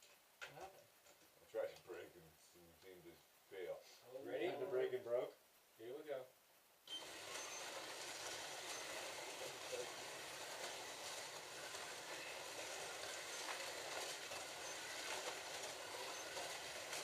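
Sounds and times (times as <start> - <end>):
slot cars whirring: 6.9 - 17.0.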